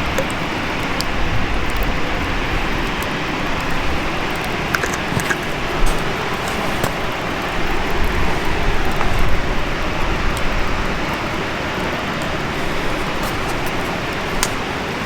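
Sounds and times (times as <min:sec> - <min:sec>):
campfire crackles: 0:00.0 - 0:15.0.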